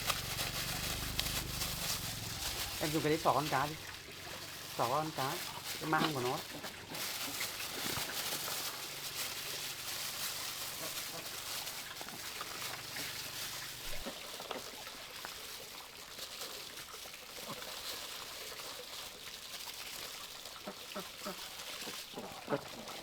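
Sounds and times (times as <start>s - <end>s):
handling noises: 0.0s - 14.0s
running water trickling: 0.0s - 23.0s.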